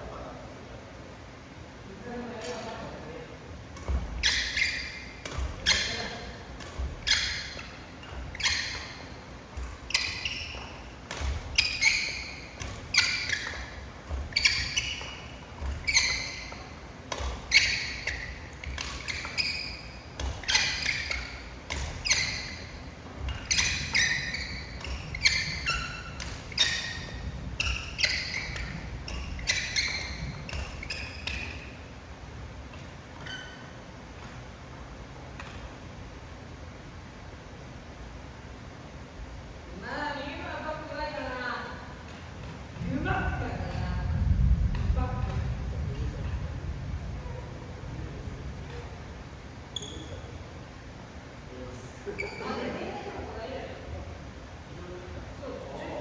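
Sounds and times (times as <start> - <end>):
rackets striking shuttlecocks: 3.7 - 31.8
short high squeak: 4.2 - 6.1, 7.0 - 7.7, 8.3 - 9.2, 9.9 - 10.9, 11.5 - 16.8, 17.5 - 21.4, 22.0 - 31.7, 49.8 - 50.4.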